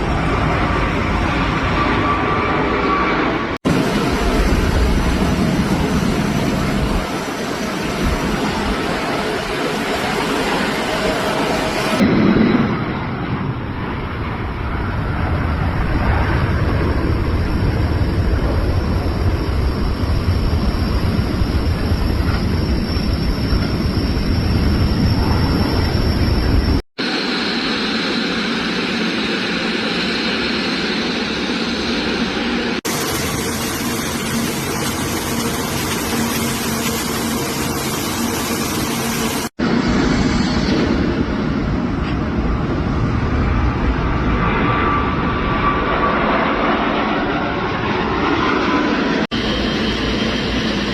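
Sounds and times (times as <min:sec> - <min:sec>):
propeller airplane engine drone: 0:00.0 - 0:50.9.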